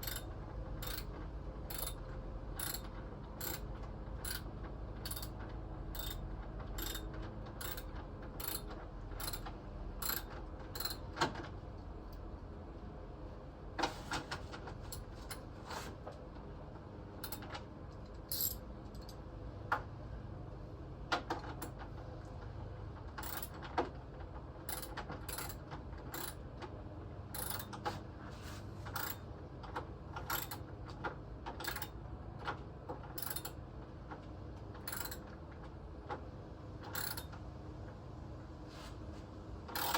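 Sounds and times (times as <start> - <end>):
hand tools clicking on metal: 0.0 - 0.2, 0.8 - 1.1, 1.7 - 2.0, 2.6 - 3.6, 5.0 - 5.3.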